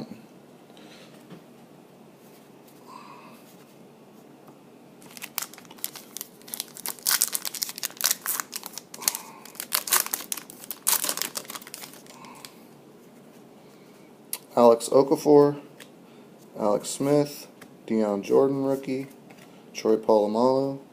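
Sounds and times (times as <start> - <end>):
plastic wrapper crinkling: 5.0 - 12.6.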